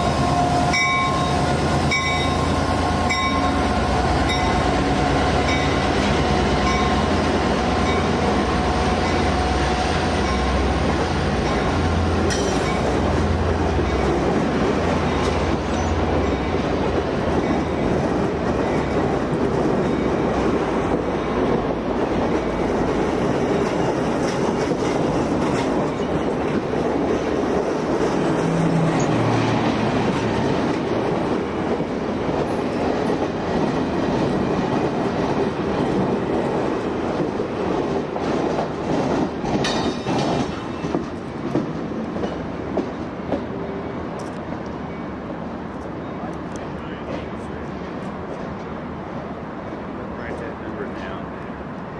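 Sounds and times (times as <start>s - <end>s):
train rumbling on rails: 0.0s - 51.9s
wheels clattering over rail joints: 3.0s - 44.4s.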